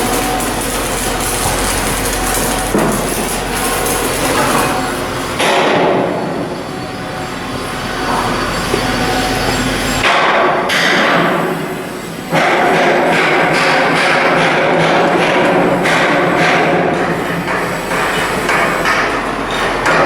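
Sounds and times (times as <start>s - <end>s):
machinery noise: 0.0s - 14.5s.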